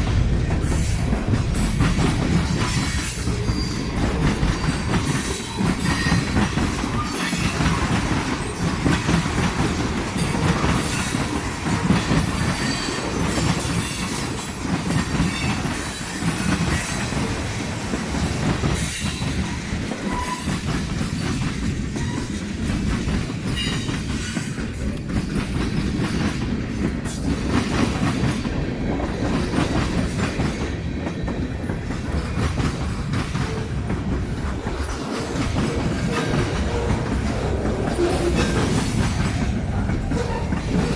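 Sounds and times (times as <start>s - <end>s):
train wheels clattering over joints: 0.0s - 40.9s
wheel squeals against rail: 2.7s - 8.7s, 14.9s - 17.0s, 18.8s - 21.3s, 21.9s - 22.4s, 23.5s - 24.6s, 40.1s - 40.9s.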